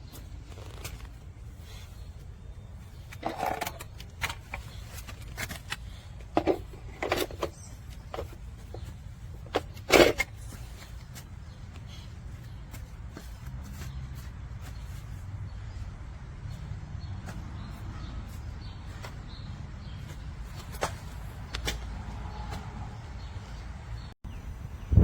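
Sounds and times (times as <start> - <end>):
objects clicking and knocking: 3.0 - 8.4.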